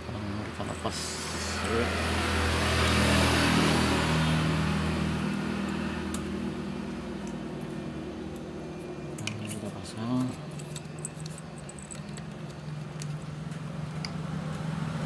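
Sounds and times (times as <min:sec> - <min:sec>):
vehicle engine passing by: 0:00.8 - 0:08.6, 0:13.4 - 0:15.0.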